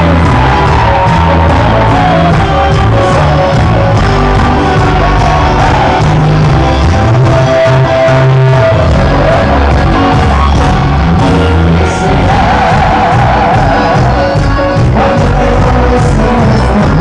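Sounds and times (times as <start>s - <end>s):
crowd shouting along: 0.0s - 2.9s, 4.2s - 7.1s, 8.8s - 14.4s
band playing dance beat: 0.0s - 17.0s
person singing: 0.0s - 17.0s.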